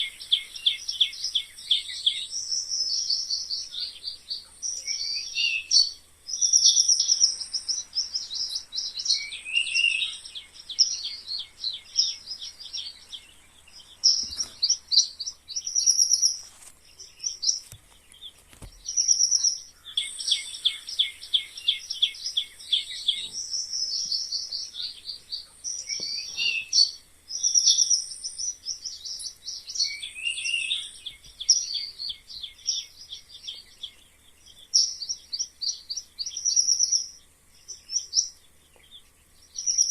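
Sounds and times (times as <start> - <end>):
mice squeaking: 13.9 - 32.8.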